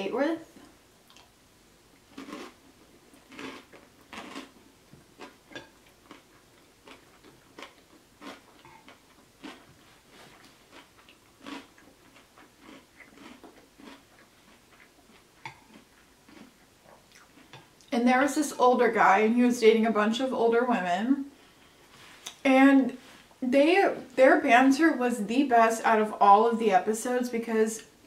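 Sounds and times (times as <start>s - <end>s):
wet chewing mouth clicks and smacks: 1.1s - 1.3s.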